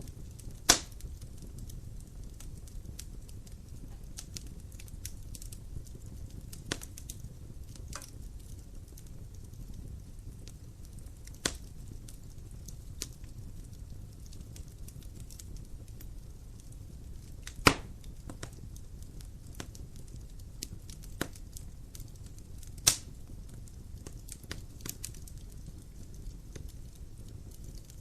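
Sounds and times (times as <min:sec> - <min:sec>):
light crackling: 0:00.0 - 0:28.0
wood fire rumbling: 0:00.0 - 0:28.0
loud sharp pops: 0:00.7 - 0:01.0, 0:17.5 - 0:18.0, 0:22.8 - 0:23.0.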